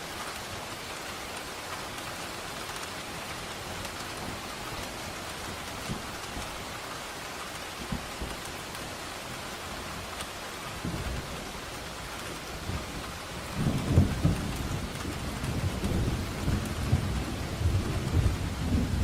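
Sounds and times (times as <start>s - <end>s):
steady rain: 0.0s - 19.0s
rolling thunder: 12.6s - 19.0s.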